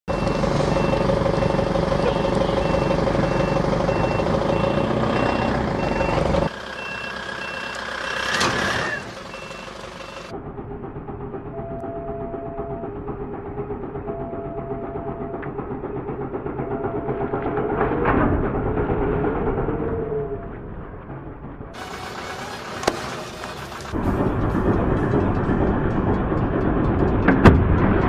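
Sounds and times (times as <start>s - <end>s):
truck engine running: 0.0s - 28.0s
reversing alarm beeping: 0.1s - 10.4s, 11.4s - 18.0s.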